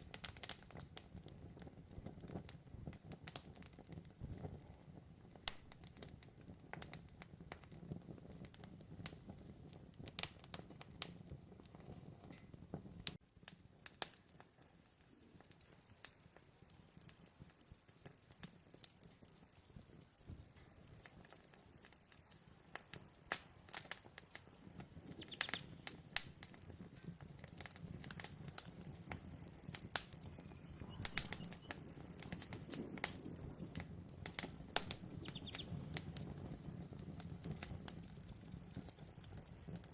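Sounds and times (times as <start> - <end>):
campfire crackling: 0.0 - 39.9
cricket trilling: 13.4 - 39.9.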